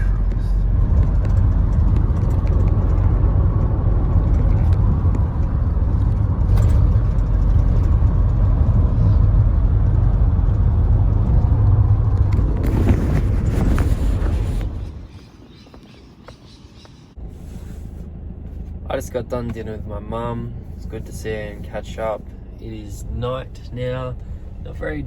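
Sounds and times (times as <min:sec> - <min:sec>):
vehicle engine and road noise: 0:00.0 - 0:25.0.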